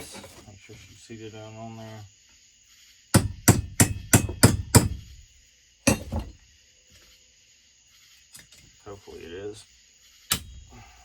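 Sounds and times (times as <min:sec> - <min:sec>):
hammer tapping metal: 0:03.2 - 0:05.0.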